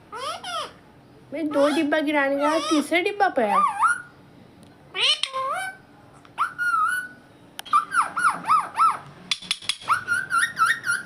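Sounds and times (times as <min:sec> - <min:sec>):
parrot whistled calls: 0:03.5 - 0:04.1, 0:04.9 - 0:05.8, 0:06.4 - 0:09.0, 0:09.7 - 0:11.0
sharp clicks or knocks: 0:09.3 - 0:09.9.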